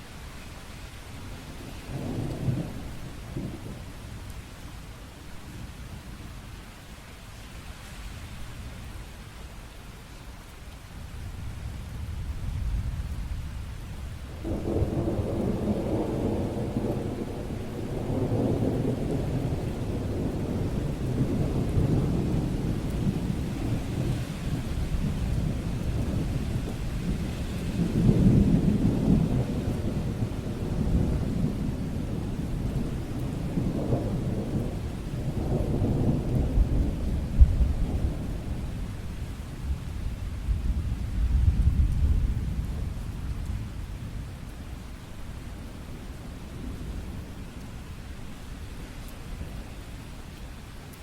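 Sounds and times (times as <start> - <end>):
rain: 0.0 - 51.0
thunder rumbling: 1.7 - 3.9, 11.3 - 48.4.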